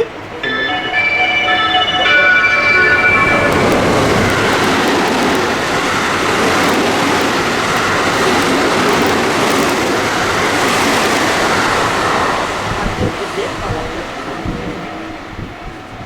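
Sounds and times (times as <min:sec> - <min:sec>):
train horn: 0:00.0 - 0:05.6
train rushing past: 0:00.0 - 0:16.0.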